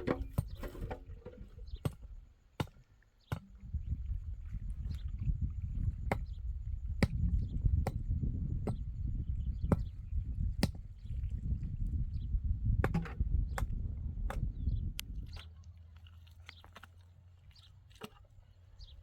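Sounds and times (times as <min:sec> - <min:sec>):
steady low rumble: 0:03.6 - 0:15.4.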